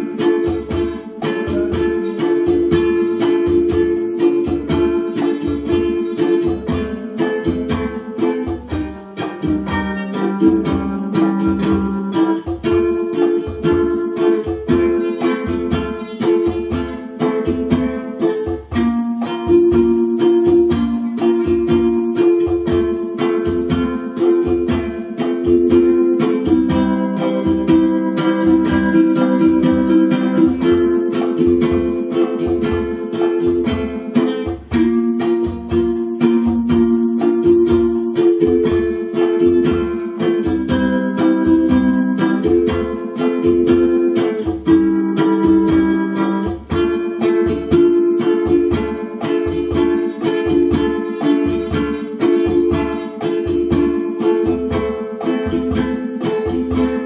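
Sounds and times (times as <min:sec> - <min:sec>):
ukulele strumming: 0:00.0 - 0:57.0.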